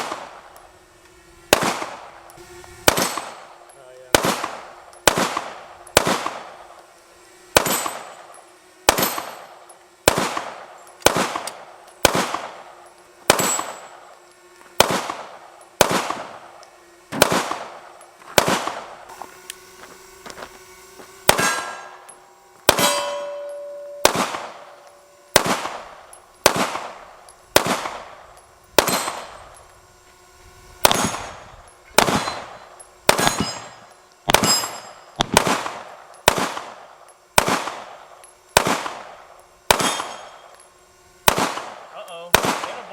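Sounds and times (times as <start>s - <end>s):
pistol shots: 1.5s - 2.2s, 2.8s - 6.6s, 8.9s - 14.1s, 14.8s - 19.0s, 21.2s - 29.4s, 30.8s - 31.4s, 32.0s - 38.0s, 38.6s - 40.4s, 41.2s - 42.9s.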